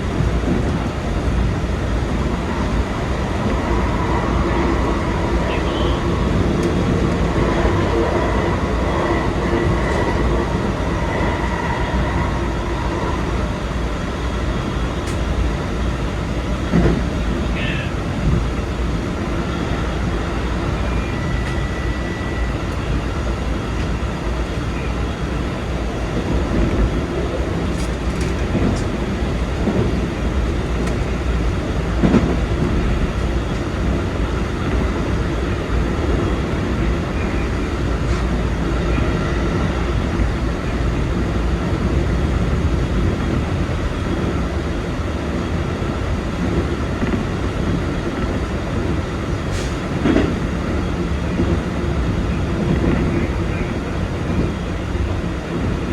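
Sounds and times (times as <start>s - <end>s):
wheels rumbling on rail: 0.0s - 55.9s.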